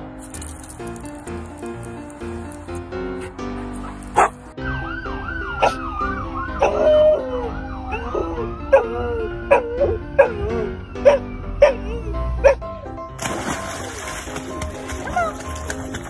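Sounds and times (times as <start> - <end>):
background music: 0.0 - 16.0
siren warbling: 4.6 - 12.1.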